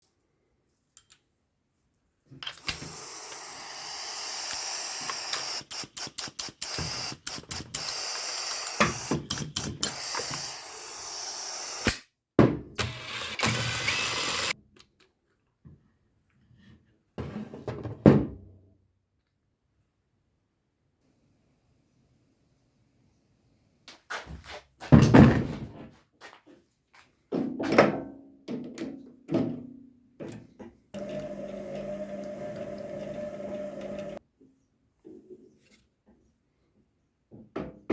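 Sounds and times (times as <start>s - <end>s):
pneumatic nail gun air hissing: 2.5s - 12.0s, 12.8s - 14.6s.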